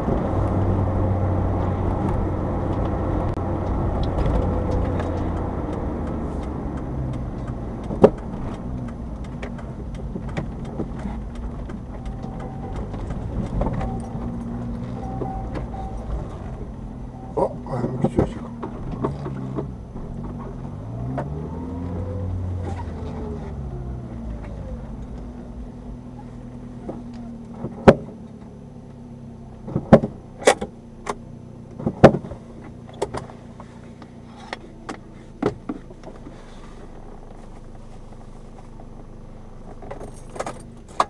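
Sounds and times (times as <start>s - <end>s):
sharp clicks and knocks: 2.0s - 16.6s.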